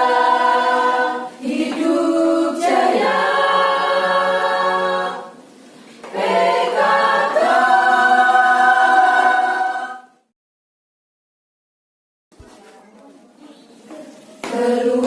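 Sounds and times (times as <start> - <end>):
women's choir singing: 0.0 - 10.3, 14.4 - 15.0.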